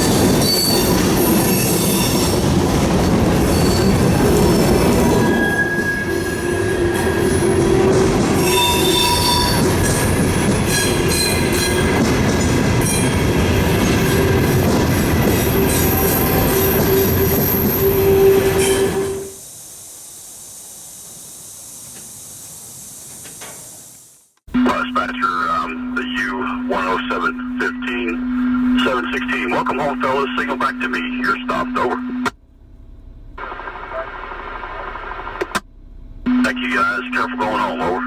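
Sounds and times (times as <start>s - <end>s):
freight train rumbling by: 0.0s - 19.4s
train wheels squealing on rails: 0.0s - 19.4s
steady hiss: 19.3s - 24.4s.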